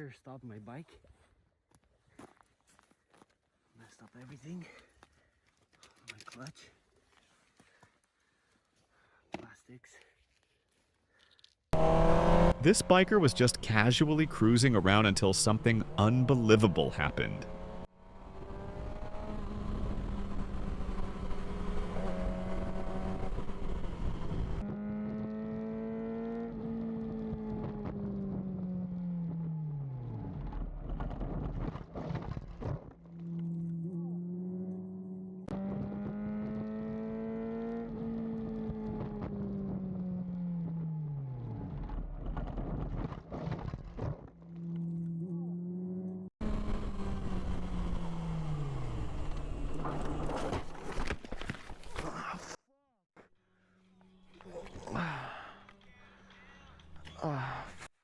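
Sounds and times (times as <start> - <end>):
motorcycle engine slowing: 11.8 - 51.9, 53.6 - 57.8.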